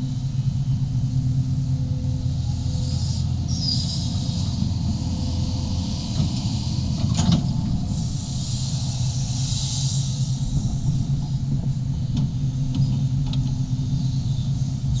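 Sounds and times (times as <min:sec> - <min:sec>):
excavator diesel engine running: 0:00.0 - 0:15.0
high hissing squeal: 0:02.3 - 0:07.0, 0:07.8 - 0:11.1.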